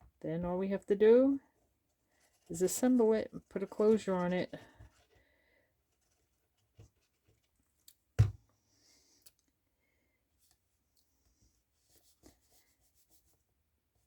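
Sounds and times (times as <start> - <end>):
paper handled on tabletop: 2.2 - 5.2.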